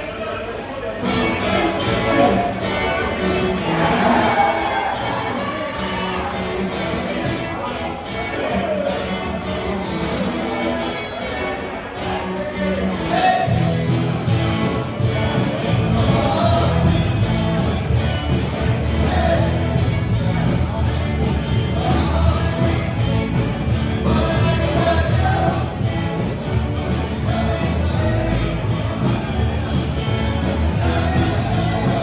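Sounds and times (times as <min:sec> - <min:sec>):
heavy bass: 0:01.0 - 0:07.6, 0:13.5 - 0:32.0
drums and cymbals: 0:06.7 - 0:07.7, 0:13.5 - 0:32.0
person singing: 0:18.7 - 0:20.8, 0:21.5 - 0:32.0.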